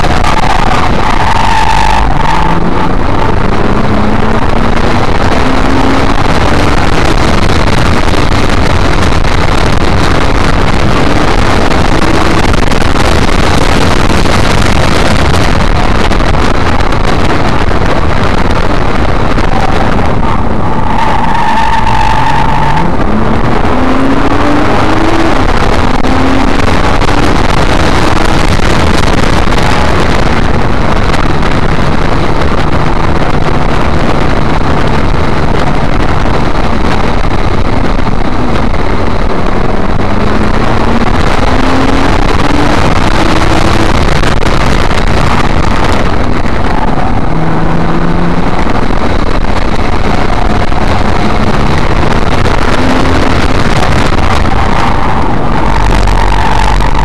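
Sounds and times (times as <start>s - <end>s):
car engine accelerating: 0.0s - 57.0s
road noise rush: 0.0s - 57.0s.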